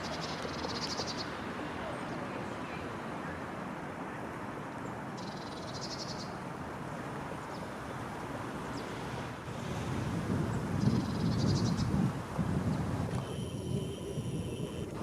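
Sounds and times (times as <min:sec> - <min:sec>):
background hiss: 0:05.2 - 0:15.0
songbird high trill: 0:10.8 - 0:12.0.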